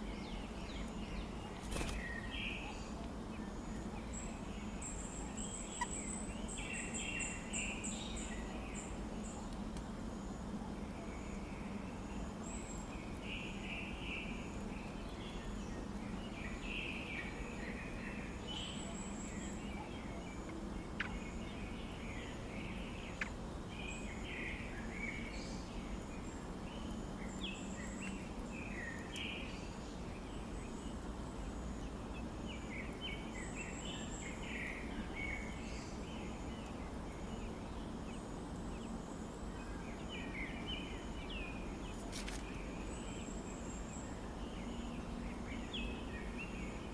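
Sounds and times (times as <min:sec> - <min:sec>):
birds chirping: 0:00.0 - 0:09.6
steady background hiss: 0:00.0 - 0:46.9.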